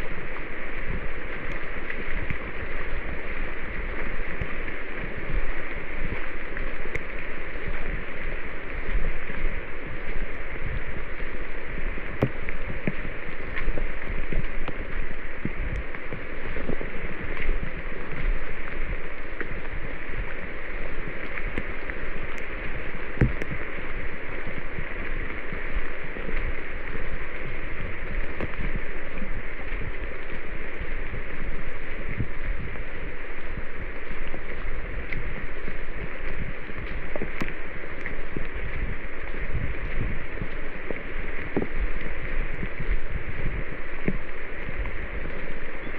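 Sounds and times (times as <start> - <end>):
water rushing: 0.0 - 45.9
faint clicks and knocks: 12.0 - 20.6, 21.2 - 24.0, 24.7 - 32.8, 33.4 - 45.9.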